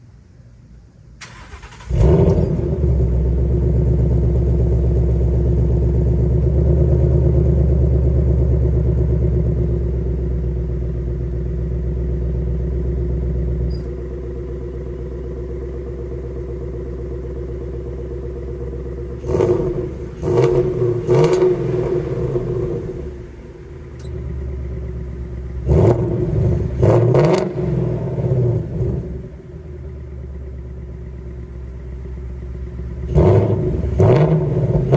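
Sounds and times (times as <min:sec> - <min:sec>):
car engine starting and idling: 0:00.2 - 0:34.9
engine revving in quick blips: 0:01.2 - 0:03.4, 0:19.2 - 0:24.4, 0:25.6 - 0:29.4, 0:33.1 - 0:34.9.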